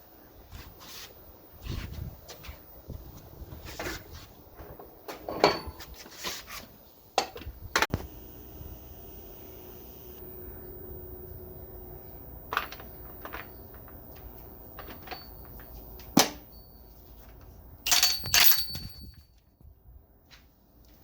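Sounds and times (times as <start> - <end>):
metal tools rattling clatter: 5.2 - 6.0, 17.9 - 19.4
metal tools clicking and knocking: 17.9 - 19.5.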